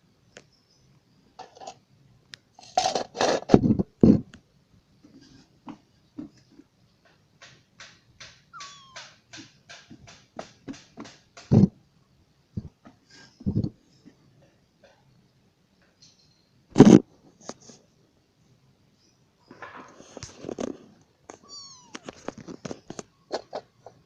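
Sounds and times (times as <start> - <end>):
kitten mewing: 8.5 - 9.2, 21.3 - 22.3.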